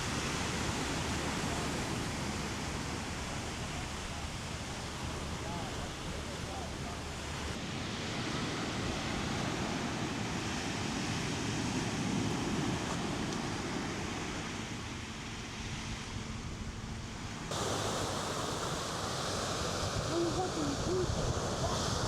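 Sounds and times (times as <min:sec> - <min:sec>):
steady outdoor rushing noise: 0:00.0 - 0:22.0
bright hiss: 0:17.5 - 0:22.0.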